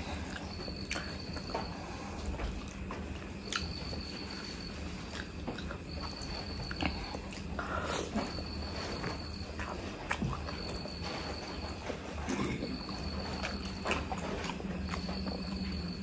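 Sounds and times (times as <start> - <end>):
wet mouth clicks and chewing: 2.5 - 3.8.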